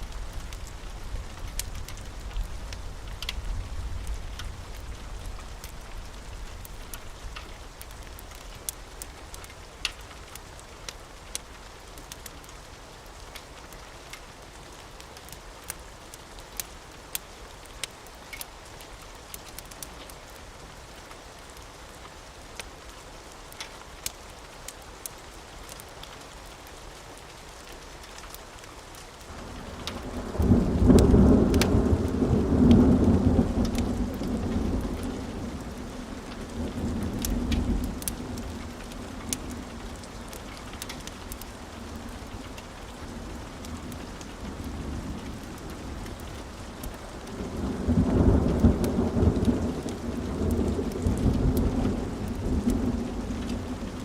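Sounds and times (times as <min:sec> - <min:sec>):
fireplace crackling: 0:00.0 - 0:12.6, 0:35.0 - 0:44.7
steady rain: 0:00.0 - 0:54.0
thunder rumbling: 0:29.3 - 0:54.0.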